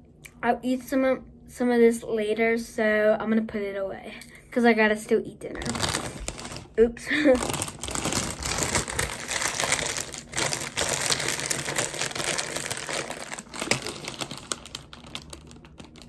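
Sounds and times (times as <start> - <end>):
snack bag crackling: 5.6 - 16.0.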